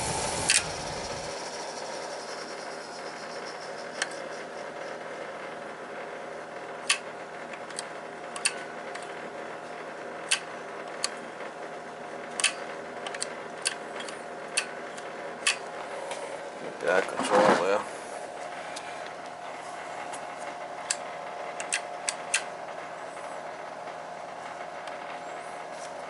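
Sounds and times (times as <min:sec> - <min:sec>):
machinery humming: 0:00.0 - 0:07.4
metal parts clicking and tapping: 0:12.4 - 0:14.7.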